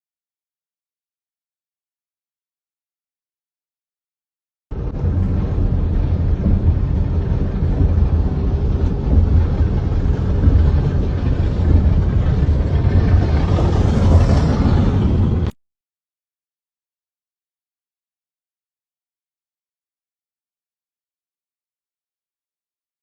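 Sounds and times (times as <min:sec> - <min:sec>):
car road and engine noise: 0:04.7 - 0:15.6.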